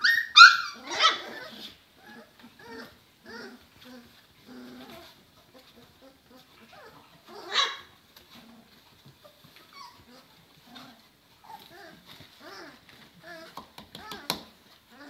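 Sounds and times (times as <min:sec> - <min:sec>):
puppy yelping loudly: 0:00.0 - 0:03.6, 0:06.0 - 0:07.9
puppies whimpering and yipping: 0:00.0 - 0:15.0.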